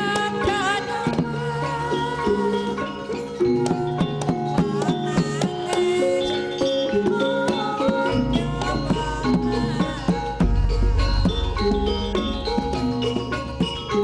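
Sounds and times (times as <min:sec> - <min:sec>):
tuned mallet percussion: 0:00.0 - 0:14.0
deep low tone: 0:09.6 - 0:14.0.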